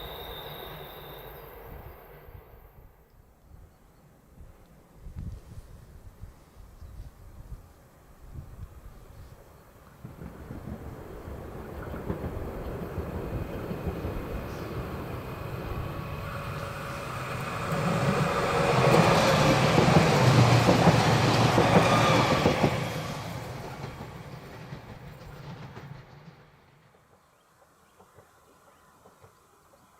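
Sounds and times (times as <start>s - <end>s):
train rail rumble: 8.4s - 29.9s.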